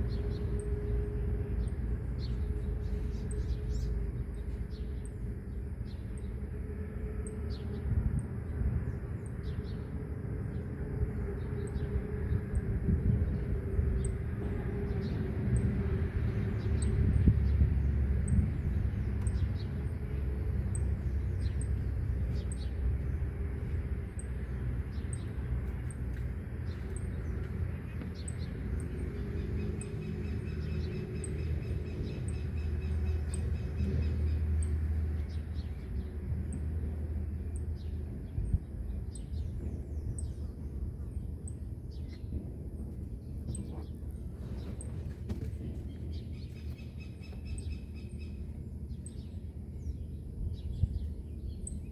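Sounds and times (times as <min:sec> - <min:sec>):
road traffic: 0:00.0 - 0:51.8
wind rumble: 0:00.0 - 0:51.9
small birds chirping: 0:13.2 - 0:51.9.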